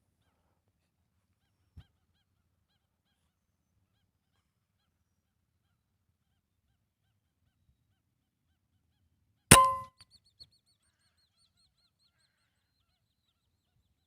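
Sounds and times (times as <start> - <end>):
rifle shot with metallic ring: 9.5 - 10.0.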